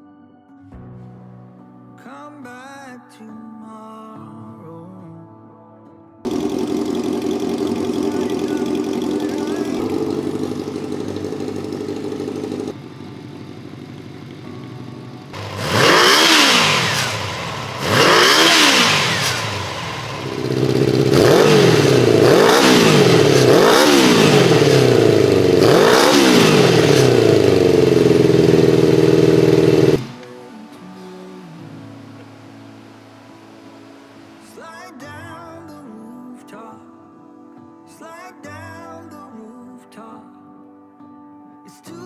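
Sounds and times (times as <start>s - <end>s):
motorcycle engine idling and revving: 6.3s - 30.3s.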